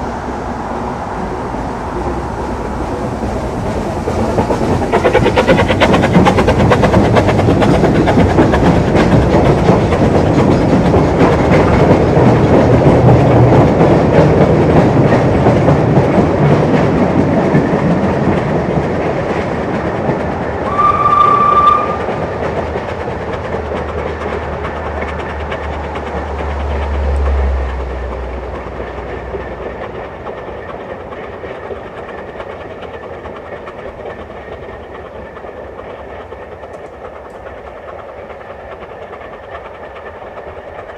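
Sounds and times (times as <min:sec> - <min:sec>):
steam train running past: 0:00.0 - 0:40.9
wheels clicking over rail joints: 0:01.2 - 0:40.9
train whistle blast: 0:20.7 - 0:22.1.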